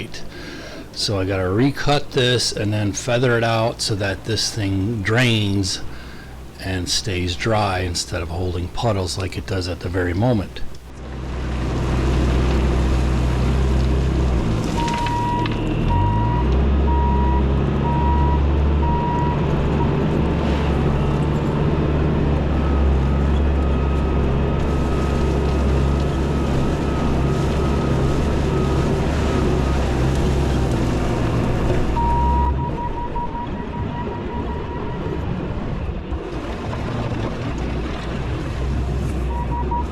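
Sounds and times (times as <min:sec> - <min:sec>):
diesel engine running under load: 0:00.0 - 0:39.9
backup alarm beeping: 0:14.8 - 0:20.1, 0:31.9 - 0:35.3, 0:39.3 - 0:39.9.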